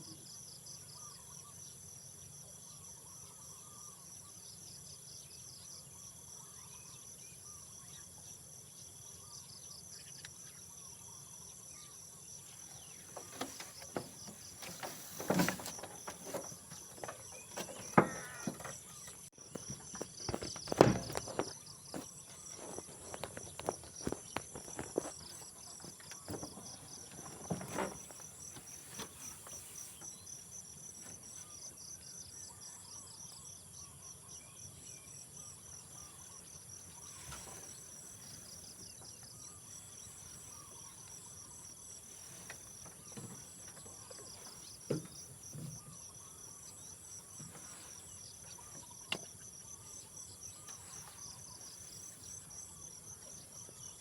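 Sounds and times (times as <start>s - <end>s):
insects chirping: 0.0s - 54.0s
sharp knocks and clicks: 13.1s - 22.1s.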